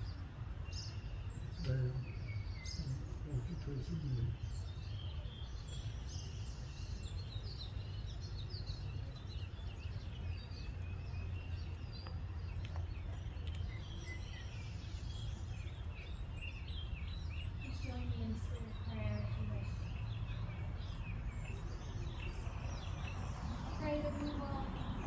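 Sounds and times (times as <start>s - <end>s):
low outdoor rumble: 0.0s - 25.0s
songbirds chirping and singing: 0.0s - 25.0s.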